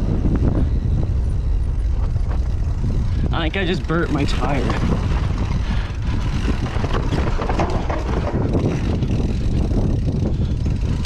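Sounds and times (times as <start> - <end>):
wind buffeting microphone: 0.0 - 11.0
bike clattering over bumps: 0.4 - 11.0
tyres grinding on rock: 4.2 - 10.1.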